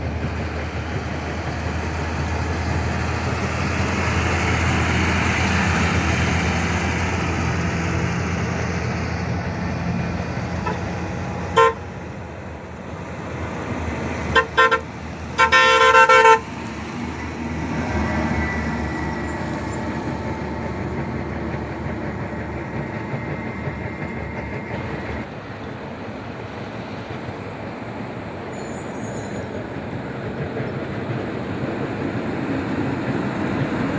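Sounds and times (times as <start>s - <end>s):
highway traffic noise: 0.0s - 33.9s
vehicle horn honking: 10.6s - 10.8s, 11.5s - 11.9s, 14.4s - 16.5s.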